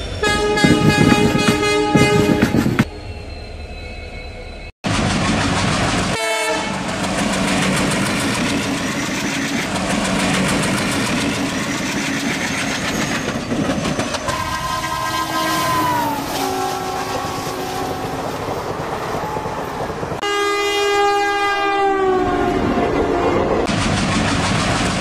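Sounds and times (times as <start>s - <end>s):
train wheels clattering: 0.0s - 2.9s, 4.9s - 20.2s, 23.6s - 25.0s
train horn: 0.2s - 3.0s, 6.1s - 6.8s, 14.3s - 23.6s.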